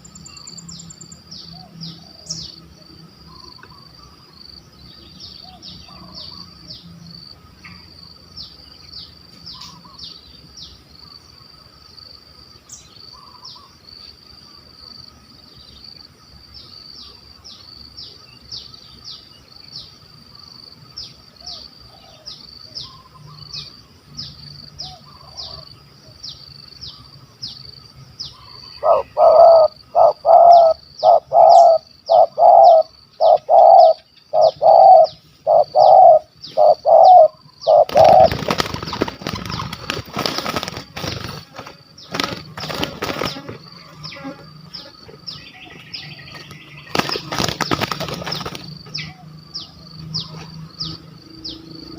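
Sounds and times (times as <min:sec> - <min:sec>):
dove cooing: 0:28.6 - 0:43.5
wings flapping and rustling: 0:37.8 - 0:43.7, 0:46.3 - 0:49.0.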